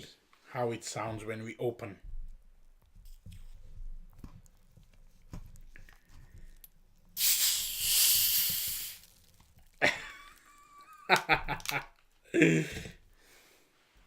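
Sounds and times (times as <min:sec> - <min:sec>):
hiss of escaping gas: 0:07.2 - 0:09.2.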